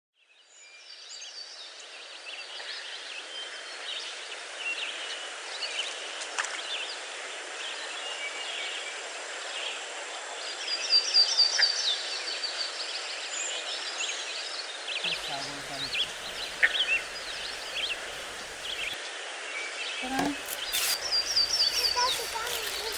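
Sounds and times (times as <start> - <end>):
birds chirping and singing: 15.1 - 19.0, 20.0 - 22.9
bright loud bird notes: 15.1 - 19.0, 20.0 - 22.9.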